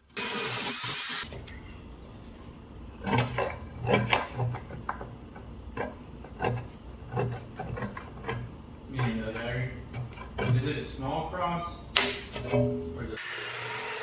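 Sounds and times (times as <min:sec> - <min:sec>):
low steady hum: 0:01.3 - 0:13.2
hard objects knocking and clattering: 0:03.0 - 0:10.8.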